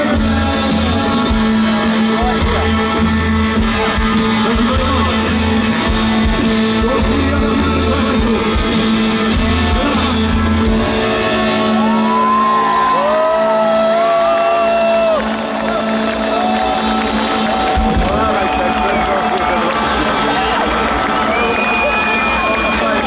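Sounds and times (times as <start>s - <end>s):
person singing: 0.0s - 12.2s
live rock band playing: 0.0s - 23.0s.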